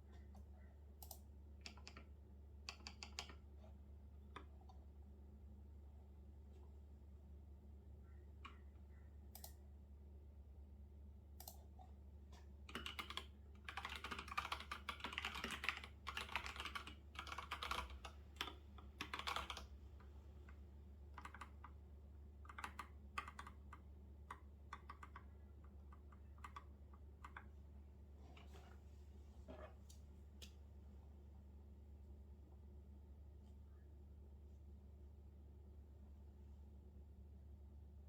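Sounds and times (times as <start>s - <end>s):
faint low steady hum: 0.0s - 38.0s
typing on computer keyboard: 1.0s - 2.1s, 2.7s - 3.4s, 12.7s - 19.7s, 21.1s - 21.8s, 22.4s - 27.5s.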